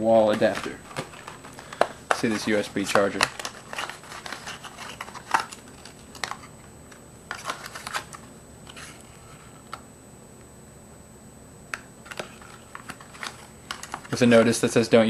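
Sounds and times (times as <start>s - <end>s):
plastic parts and packaging handled: 0.3s - 9.5s, 12.0s - 14.8s.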